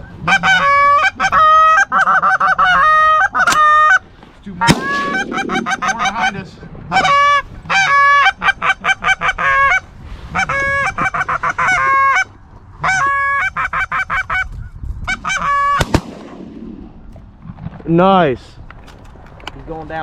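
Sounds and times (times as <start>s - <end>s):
goose honking and clucking: 0.2s - 4.0s, 4.9s - 14.5s, 15.1s - 15.8s
shotgun shot: 4.7s - 6.0s, 15.8s - 16.7s.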